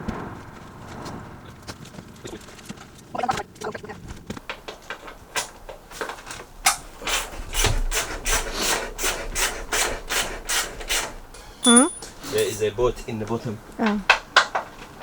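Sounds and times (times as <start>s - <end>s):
hand saw rasping: 7.0s - 11.1s.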